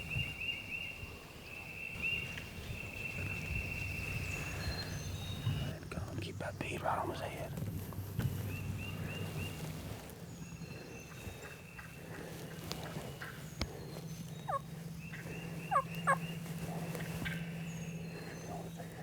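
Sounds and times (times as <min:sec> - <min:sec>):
faint songbird calls: 0:00.0 - 0:19.0
turkey gobbling: 0:14.5 - 0:17.4.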